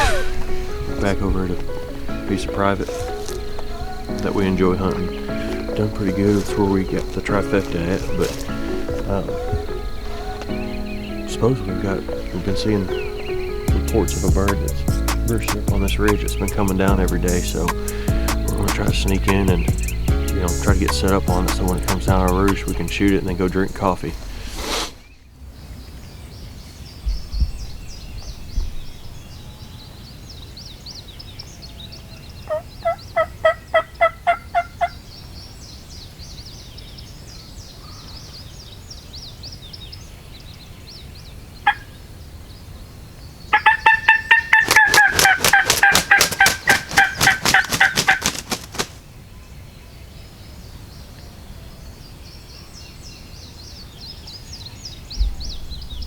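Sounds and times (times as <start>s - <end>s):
high chirping of birds or insects: 0.0s - 56.0s
turkey rattling gobble: 32.5s - 35.0s, 43.5s - 49.0s
turkey yelps: 32.5s - 35.0s, 43.5s - 48.5s.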